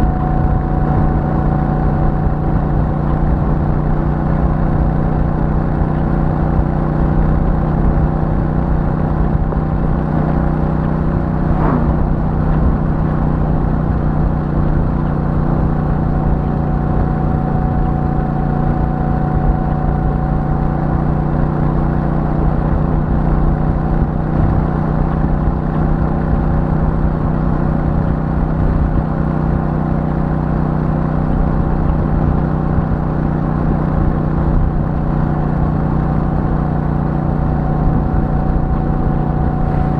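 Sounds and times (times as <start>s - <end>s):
motorcycle engine cruising: 0.0s - 39.9s
brief rising and falling sound: 11.3s - 12.5s.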